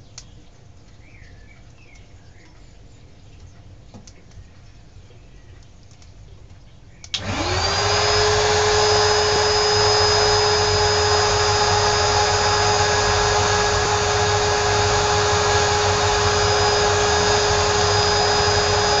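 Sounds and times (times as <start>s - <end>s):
electric blower whining: 7.2s - 19.0s.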